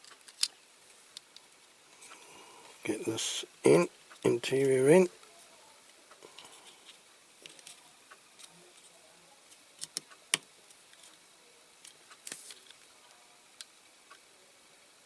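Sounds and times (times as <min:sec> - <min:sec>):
small clicks of toy car parts: 0:00.0 - 0:01.5, 0:06.4 - 0:07.8, 0:09.5 - 0:11.2, 0:11.8 - 0:12.9.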